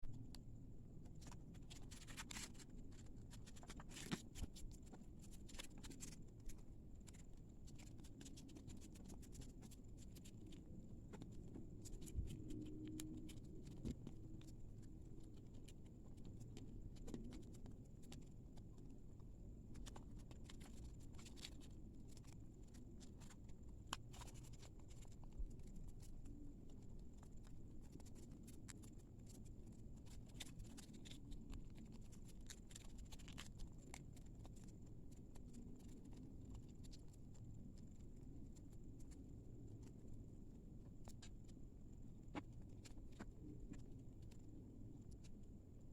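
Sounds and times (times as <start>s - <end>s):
small clicks and scrapes: 0.0s - 45.9s
paper rustling and crackling: 1.0s - 14.5s.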